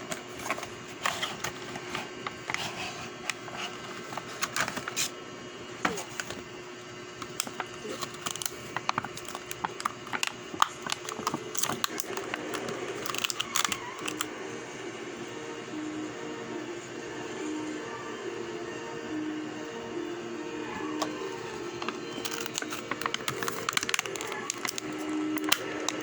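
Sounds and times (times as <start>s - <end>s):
plastic packaging clicks and crinkles: 0.0s - 5.1s, 5.9s - 6.4s, 7.2s - 14.3s, 21.0s - 26.0s.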